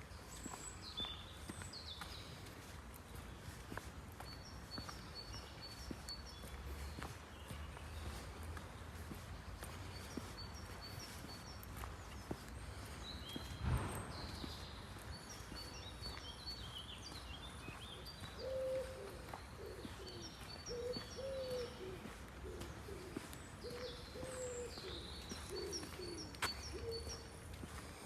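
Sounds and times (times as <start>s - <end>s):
small birds chirping: 0.0s - 28.0s
dove cooing: 18.4s - 27.1s.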